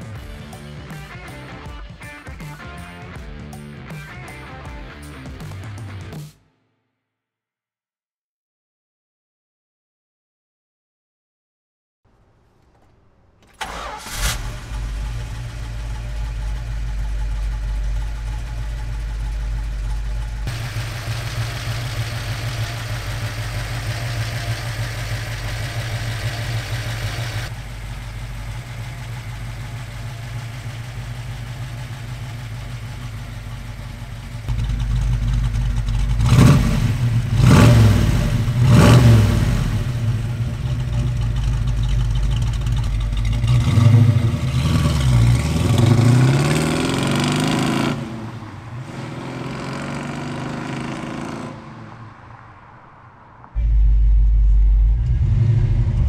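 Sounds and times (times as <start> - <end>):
car engine idling: 12.1 - 51.1, 51.8 - 56.0
car engine cranking and catching: 12.1 - 51.4
car engine revving: 12.4 - 56.0.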